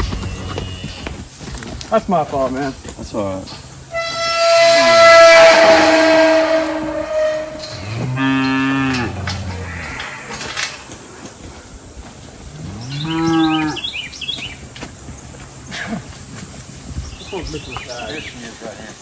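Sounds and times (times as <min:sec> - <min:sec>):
cattle mooing: 0:00.0 - 0:01.1, 0:03.9 - 0:11.0, 0:12.5 - 0:14.0.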